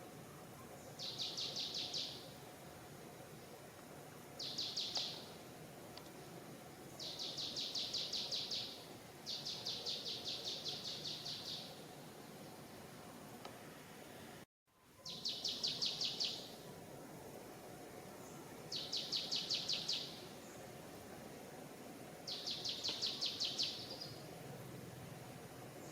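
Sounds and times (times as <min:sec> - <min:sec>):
faint outdoor background hiss: 0:00.0 - 0:25.9
forest background noise: 0:00.0 - 0:25.9
bird chirping: 0:00.8 - 0:02.4, 0:04.4 - 0:05.3, 0:06.9 - 0:11.8, 0:15.0 - 0:16.6, 0:18.2 - 0:20.6, 0:22.3 - 0:24.2.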